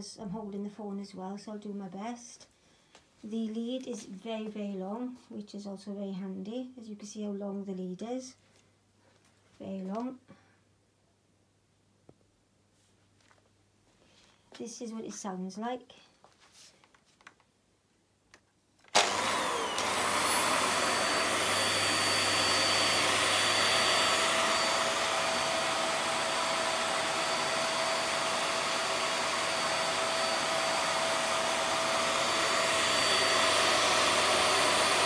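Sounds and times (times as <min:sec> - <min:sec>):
vacuum cleaner motor whining: 0:18.9 - 0:35.0.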